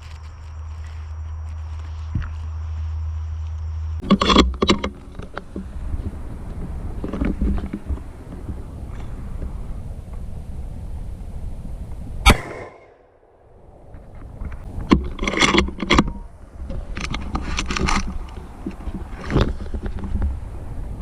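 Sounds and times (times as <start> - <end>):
wind rumble on microphone: 0.0 - 21.0
handling clicks and rustling: 3.3 - 5.7, 6.5 - 9.1, 14.0 - 20.5
rifle shot: 12.2 - 13.0.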